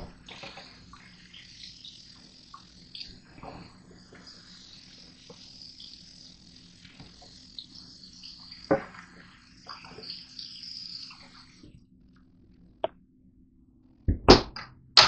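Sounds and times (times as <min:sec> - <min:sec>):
high hiss: 0:00.0 - 0:11.8
appliance hum: 0:00.0 - 0:14.4.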